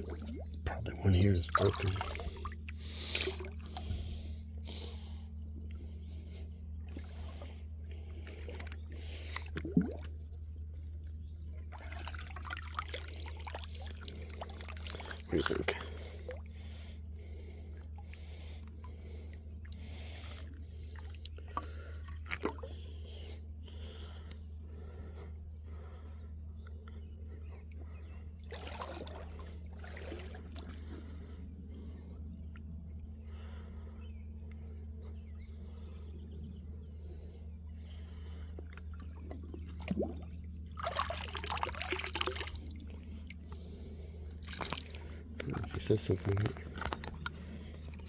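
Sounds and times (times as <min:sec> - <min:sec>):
creek water trickling: 0:00.0 - 0:05.1, 0:06.8 - 0:22.7, 0:28.4 - 0:31.4, 0:38.2 - 0:48.0.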